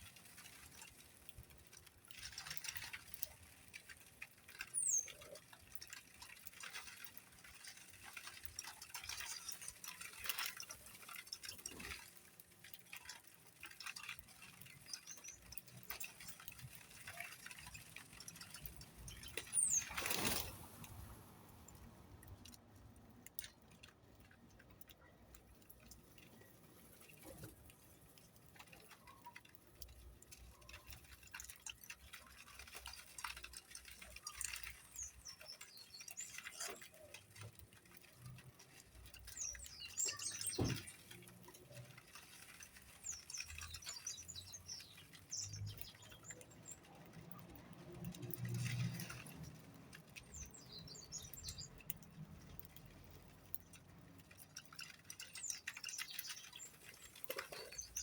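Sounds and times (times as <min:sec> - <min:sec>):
light clicks and taps: 0:00.0 - 0:58.0
small birds chirping: 0:04.5 - 0:21.0, 0:24.3 - 0:47.6, 0:48.2 - 0:58.0.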